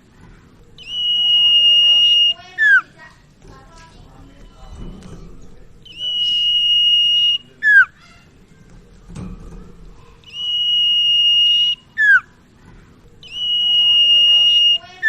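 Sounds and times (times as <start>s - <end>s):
songbird whistled song: 0.8s - 3.0s, 5.8s - 8.3s, 10.2s - 12.4s, 13.2s - 15.0s.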